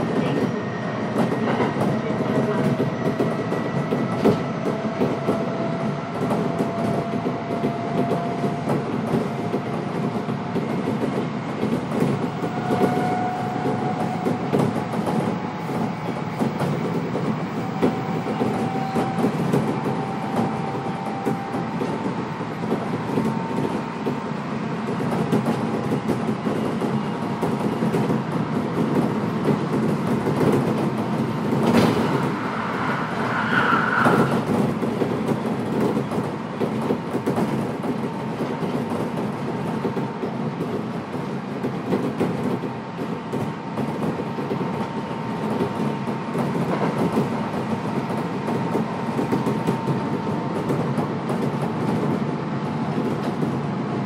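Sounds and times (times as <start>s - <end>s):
train wheels rumbling on rail: 0.0s - 54.0s
rail-joint clicks: 24.8s - 33.2s.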